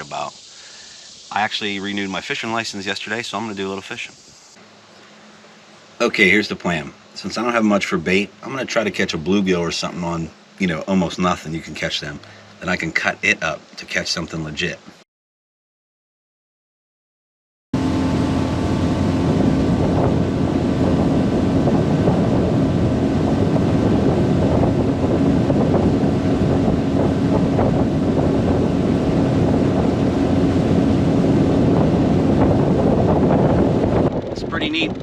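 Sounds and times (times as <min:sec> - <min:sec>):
water rushing: 0:00.0 - 0:04.9, 0:17.8 - 0:35.0
outboard motor running: 0:04.6 - 0:13.6, 0:17.8 - 0:35.0
wind buffeting microphone: 0:17.8 - 0:35.0.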